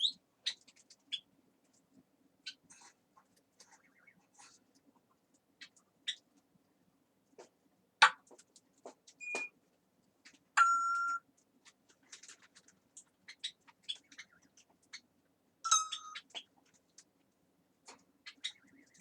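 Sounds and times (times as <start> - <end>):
parrot beep-like whistle: 9.2 - 9.5, 10.6 - 11.2
parrot high whistle: 9.2 - 9.5
parrot clicks and chirps: 15.7 - 16.5.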